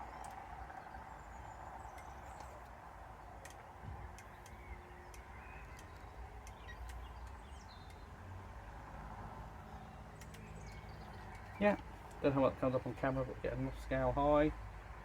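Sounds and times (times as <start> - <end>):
light clicks: 3.4 - 8.1, 10.1 - 12.3.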